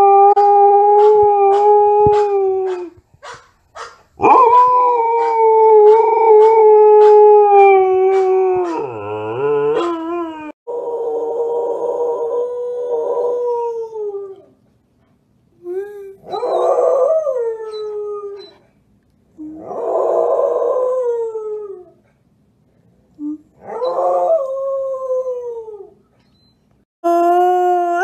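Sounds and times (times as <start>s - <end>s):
dogs howling: 0.0s - 2.9s, 4.2s - 14.5s, 23.6s - 25.9s.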